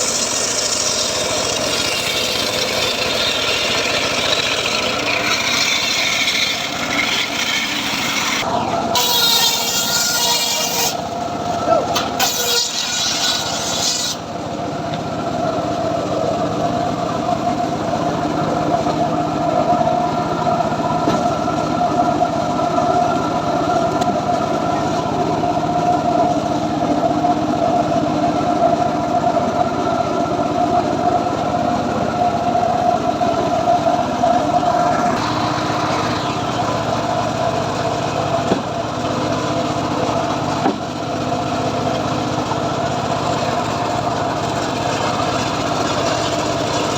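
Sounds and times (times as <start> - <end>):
saw cutting hiss: 0.0 - 11.2, 12.0 - 14.3
small saw engine running: 0.0 - 46.9.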